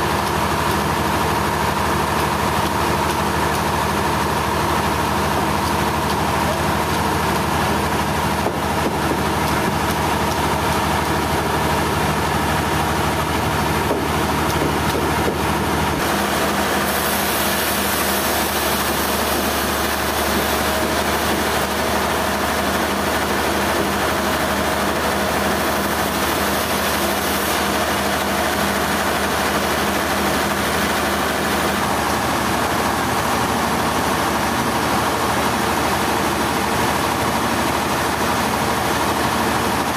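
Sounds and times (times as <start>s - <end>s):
heavy machinery engine hum: 0.0s - 39.9s.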